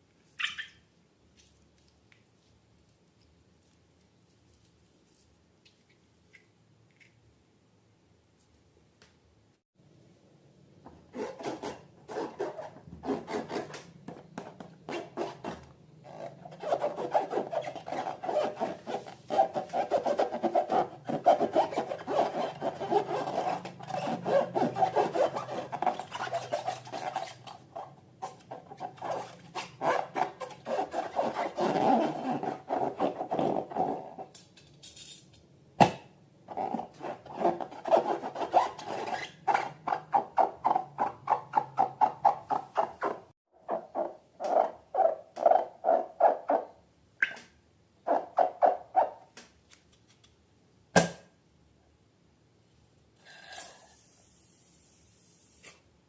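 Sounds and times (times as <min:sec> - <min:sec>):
fast rubbing strokes: 0:16.1 - 0:33.3.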